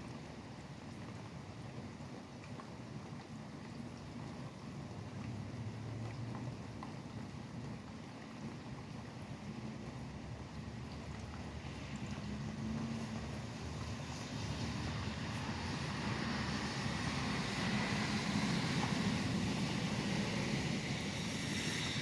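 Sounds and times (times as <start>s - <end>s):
steady rain: 0.0s - 22.0s
tyres hissing on wet road: 9.6s - 22.0s.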